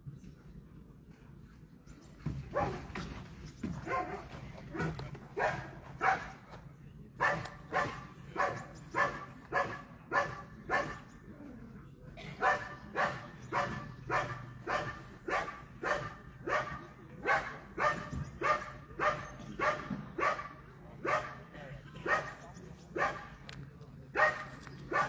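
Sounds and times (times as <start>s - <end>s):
dog barking: 4.8s - 6.3s, 7.2s - 11.0s, 12.4s - 21.4s, 24.1s - 25.0s.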